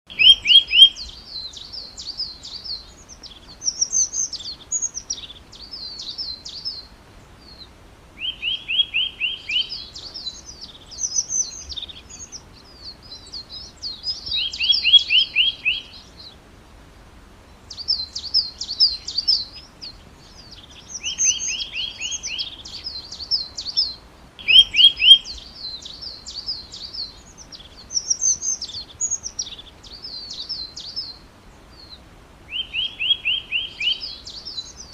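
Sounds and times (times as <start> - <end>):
songbird singing: 0.1 - 34.9.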